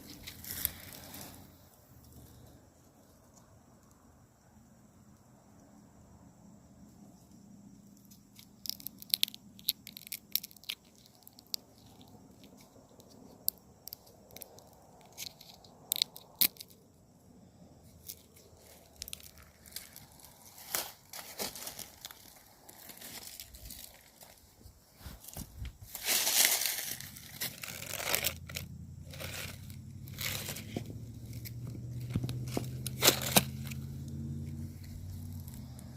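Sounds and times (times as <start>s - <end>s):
footsteps crunching through dry leaves: 18.6s - 30.8s.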